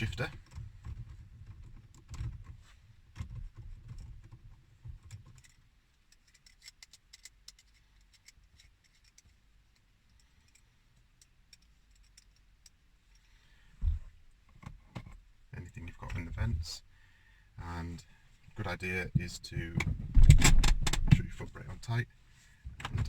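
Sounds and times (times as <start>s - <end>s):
hands clicking and scratching plastic trim: 0.0s - 13.3s.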